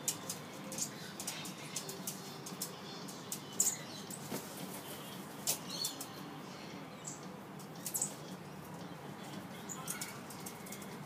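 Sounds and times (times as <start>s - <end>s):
birds fluttering and shuffling: 0.0s - 6.3s, 7.2s - 11.0s
scratchy rustles of wings: 3.6s - 6.1s.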